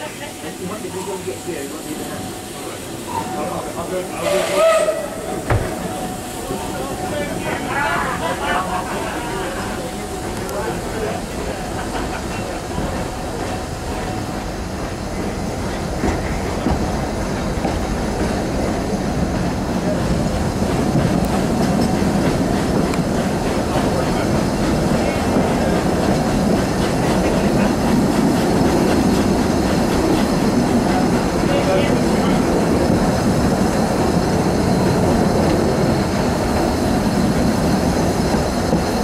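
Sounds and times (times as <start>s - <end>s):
steam train running: 0.0s - 39.0s.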